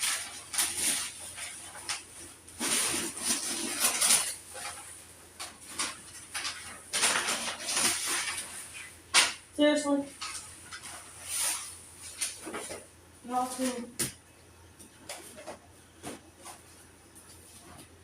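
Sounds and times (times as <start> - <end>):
household items rustling and clattering: 0.0 - 14.2, 14.8 - 18.0.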